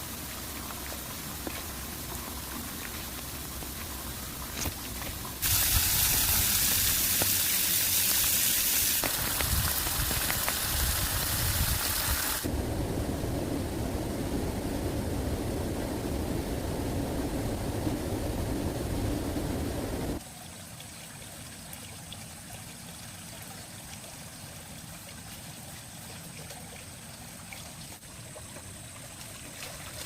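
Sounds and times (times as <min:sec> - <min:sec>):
running water: 0:00.0 - 0:12.5, 0:18.8 - 0:30.0
steady rain: 0:00.0 - 0:20.2.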